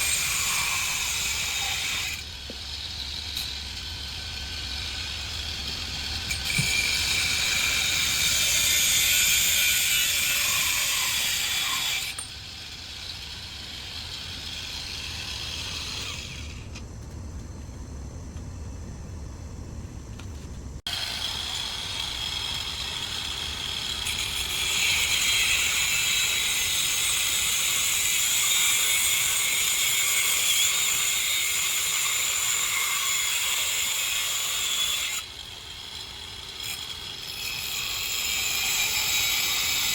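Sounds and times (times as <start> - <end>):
angle grinder grinding: 0.0 - 16.8.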